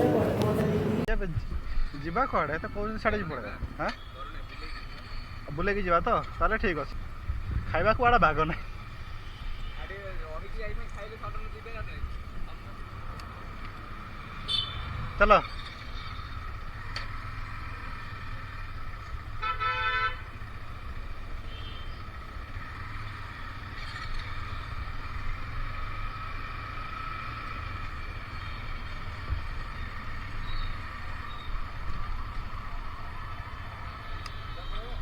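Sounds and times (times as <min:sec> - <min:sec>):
motorcycle engine and road noise: 0:00.0 - 0:35.0
vehicle horn honk: 0:14.4 - 0:14.9, 0:19.4 - 0:20.3, 0:21.5 - 0:21.9.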